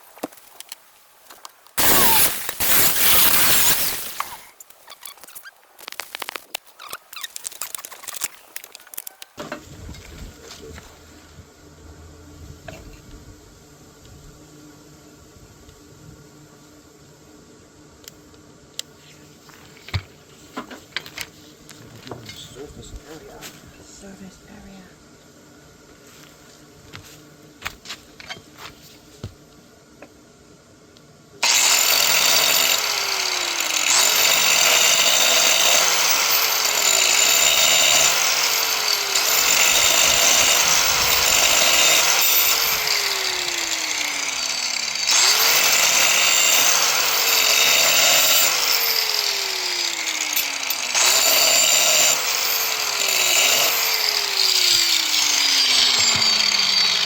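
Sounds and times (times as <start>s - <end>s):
electric power tool whirring: 1.8s - 9.0s, 31.4s - 57.0s.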